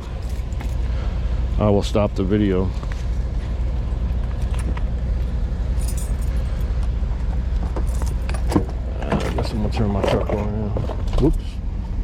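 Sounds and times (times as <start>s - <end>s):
vehicle engine idling: 0.0s - 12.0s
metallic jingles and clicks: 5.8s - 6.6s, 7.7s - 10.5s.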